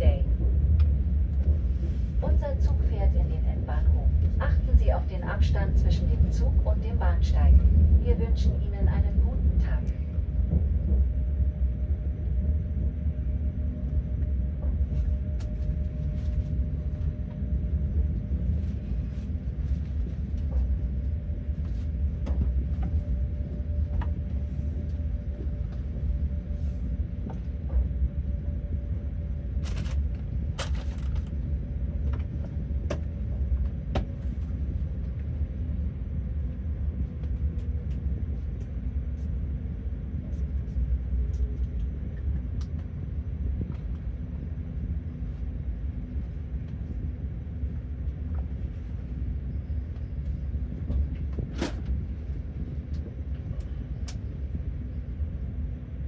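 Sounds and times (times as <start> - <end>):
train wheels rumbling on rails: 0.0 - 35.4
constant hum: 0.0 - 56.0.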